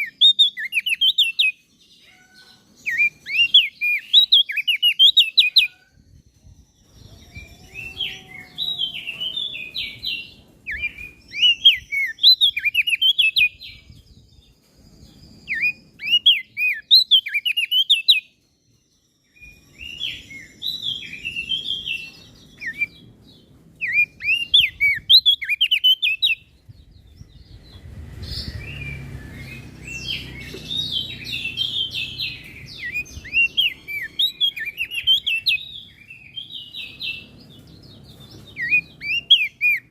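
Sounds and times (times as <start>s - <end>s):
bird chirping: 0.0s - 39.9s
low rumbling noise: 26.4s - 39.0s.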